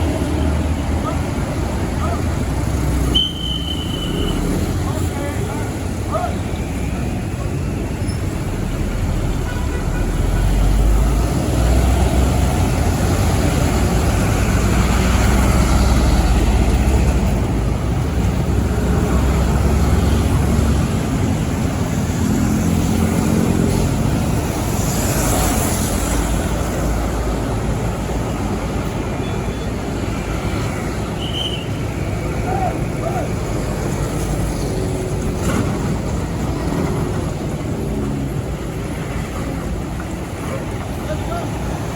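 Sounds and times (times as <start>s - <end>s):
heavy trucks driving past: 0.0s - 41.9s.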